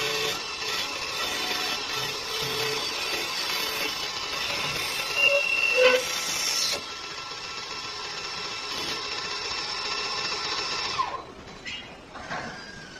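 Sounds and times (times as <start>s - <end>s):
tools cutting wood: 0.0s - 7.0s.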